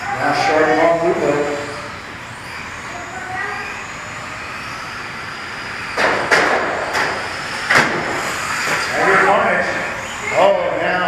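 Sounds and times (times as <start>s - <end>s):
electric motors whining: 0.0s - 11.0s
sharp knocks: 6.0s - 8.2s.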